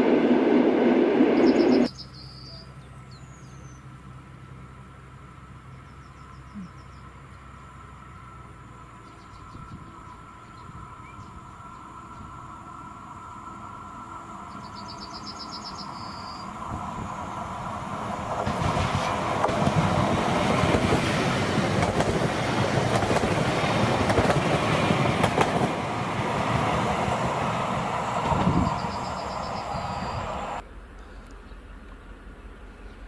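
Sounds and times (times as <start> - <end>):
train passing: 0.0 - 1.9, 7.5 - 33.0
bird chirping: 1.4 - 3.9, 14.5 - 16.6, 26.6 - 31.7
wheels clacking over rail joints: 18.1 - 29.7.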